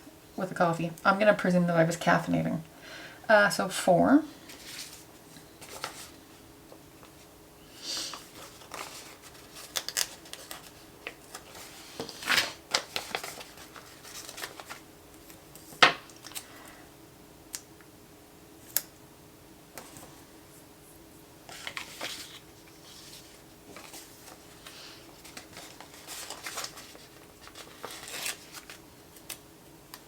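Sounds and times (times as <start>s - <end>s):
faint steady hum: 0.0s - 30.0s
paper rustling and peeling: 4.5s - 6.2s, 8.1s - 15.8s, 21.5s - 29.4s.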